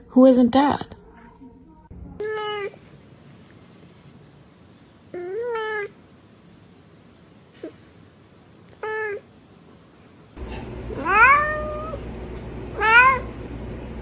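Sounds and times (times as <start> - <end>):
cat meowing: 2.2 - 2.8, 5.2 - 6.0, 8.8 - 9.3, 11.0 - 12.0, 12.8 - 13.3.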